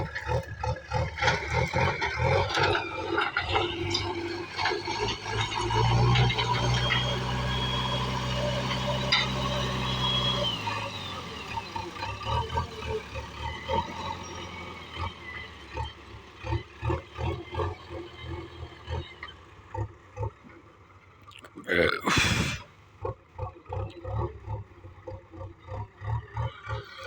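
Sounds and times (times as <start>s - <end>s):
irregular knocks and clatters: 0.0s - 7.7s
diesel engine running: 0.0s - 21.2s, 22.1s - 27.0s.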